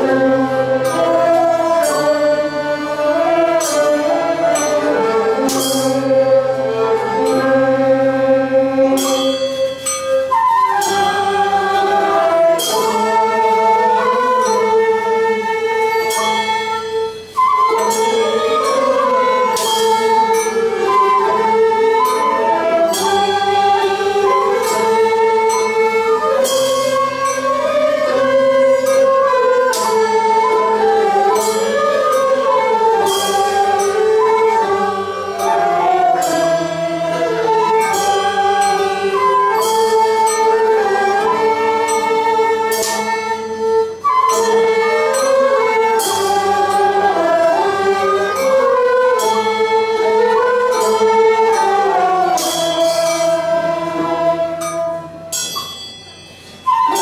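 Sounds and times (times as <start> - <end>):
sustained wavering melody: 0.0 - 57.0
sharp percussive strike: 3.6 - 7.6, 31.3 - 57.0.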